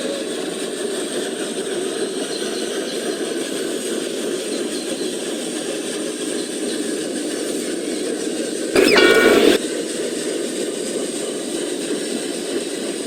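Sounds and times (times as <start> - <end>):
thin high whine: 8.8 - 9.6.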